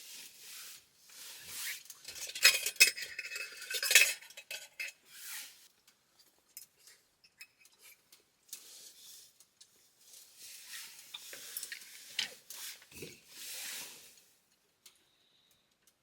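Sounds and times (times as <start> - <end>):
metal utensils scraping cookware: 1.2 - 5.6, 10.4 - 14.1.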